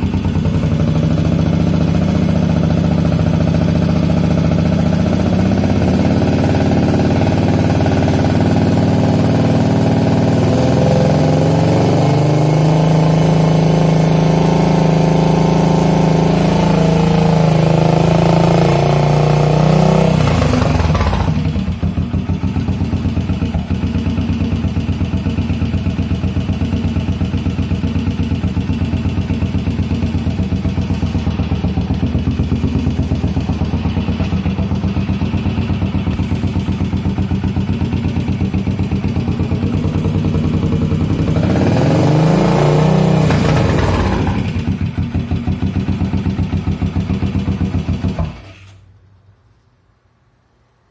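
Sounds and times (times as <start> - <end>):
single-cylinder motorcycle engine revving: 0.0 - 48.8.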